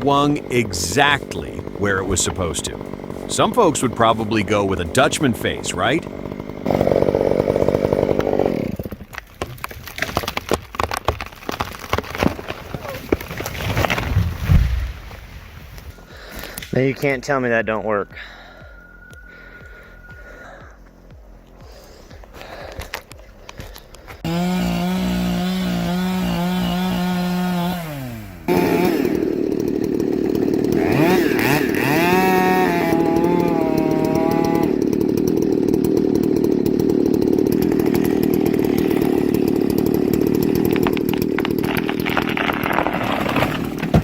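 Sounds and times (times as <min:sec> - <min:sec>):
sharp cracks: 0:00.0 - 0:15.3, 0:28.5 - 0:44.0
chainsaw cutting wood: 0:00.0 - 0:17.1, 0:18.7 - 0:44.0.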